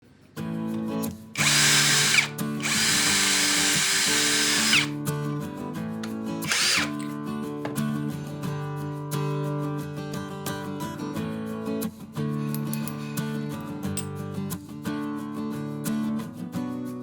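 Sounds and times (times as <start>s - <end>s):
electric drill running: 1.4s - 4.9s, 6.4s - 7.1s.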